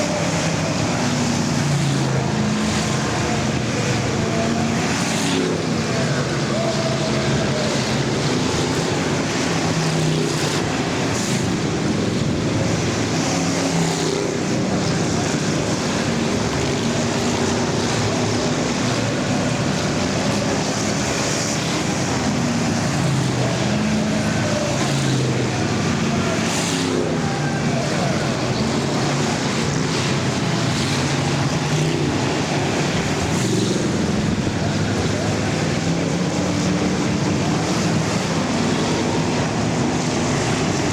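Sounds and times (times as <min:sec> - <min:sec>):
race car engines revving: 0:00.0 - 0:40.9
tyre and exhaust noise: 0:00.0 - 0:40.9.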